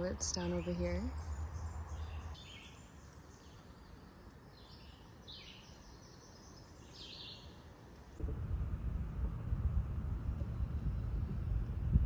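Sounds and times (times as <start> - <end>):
faint songbird chirps: 0.1 - 7.8.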